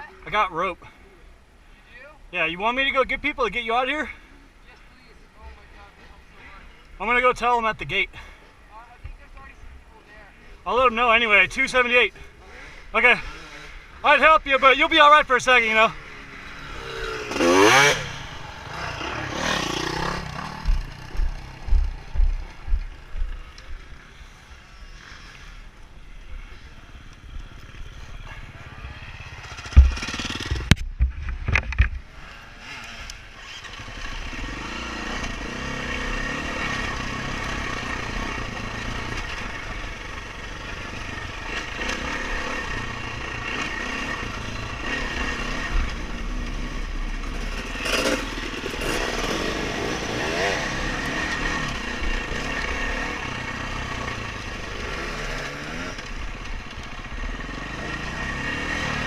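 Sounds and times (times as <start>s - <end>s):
dirt bike engine revving: 11.8s - 14.3s, 15.6s - 23.1s, 27.5s - 30.8s, 32.2s - 59.0s
sharp knocks: 29.7s - 32.0s.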